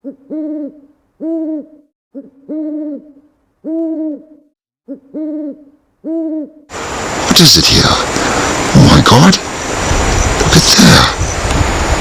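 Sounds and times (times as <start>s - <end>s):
low hooting call: 0.0s - 6.7s.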